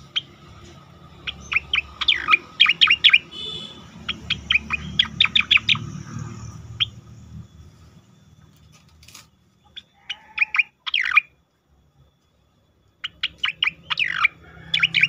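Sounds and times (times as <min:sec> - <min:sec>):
bird singing whistled notes: 0:00.0 - 0:07.8, 0:09.6 - 0:11.4, 0:13.0 - 0:15.0.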